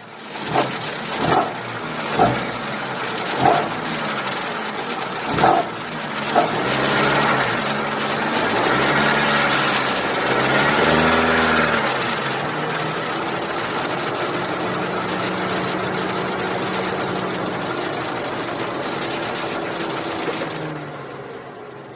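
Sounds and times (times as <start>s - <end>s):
engine ticking and squeaking: 0.0s - 9.3s, 12.6s - 20.8s
car engine idling: 0.0s - 21.9s.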